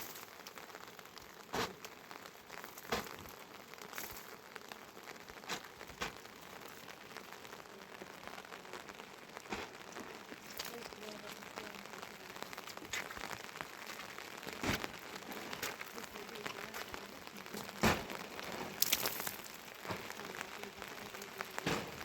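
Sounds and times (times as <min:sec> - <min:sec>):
heavy rain hissing: 0:00.0 - 0:22.0
sharp cracks or knocks: 0:01.5 - 0:01.8, 0:02.8 - 0:03.3, 0:14.6 - 0:15.8, 0:17.6 - 0:20.2, 0:21.6 - 0:22.0.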